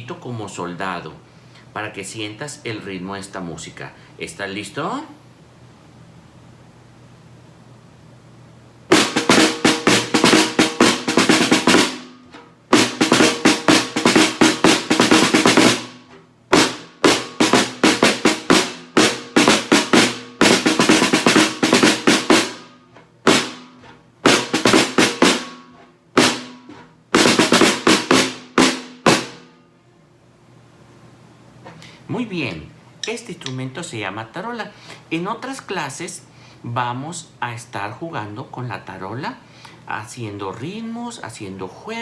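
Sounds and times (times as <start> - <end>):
snare drum marching cadence: 8.9 - 29.6.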